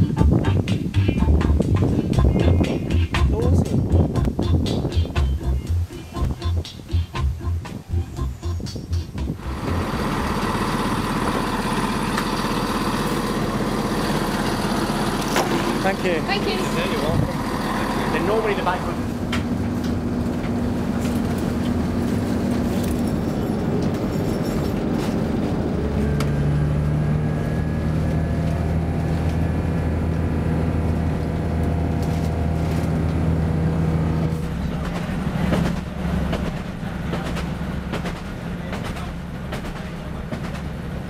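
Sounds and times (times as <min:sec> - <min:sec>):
diesel train engine: 0:00.0 - 0:41.0
train wheels clicking over rails: 0:34.2 - 0:41.0.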